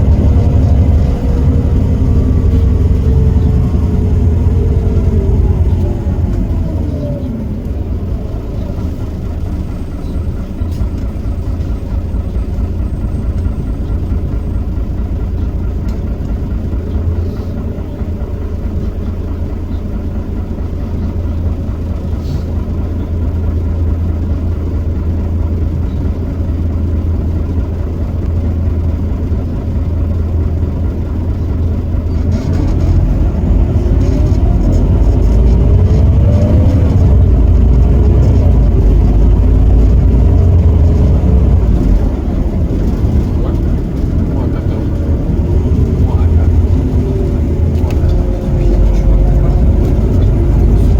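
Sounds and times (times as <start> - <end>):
diesel bus engine rumbling: 0.0 - 50.9.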